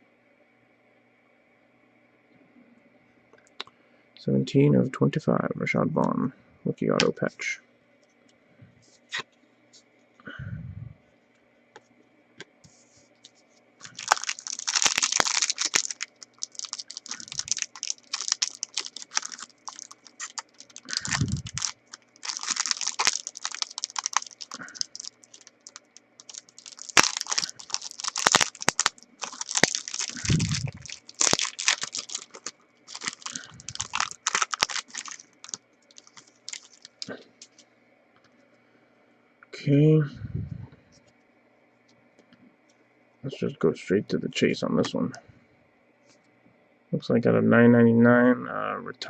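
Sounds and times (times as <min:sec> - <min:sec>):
plastic wrapper crinkling: 0:13.2 - 0:37.6.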